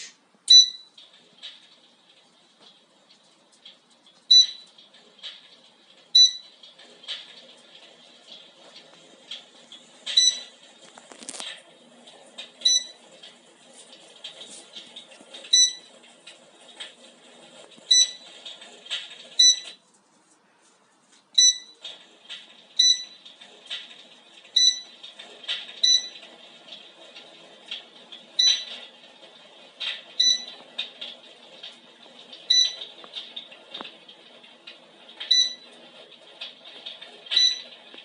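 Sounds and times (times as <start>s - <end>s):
short high beeps: 0.5s - 0.9s, 6.2s - 6.4s, 12.7s - 13.0s, 21.4s - 21.8s, 22.8s - 23.2s.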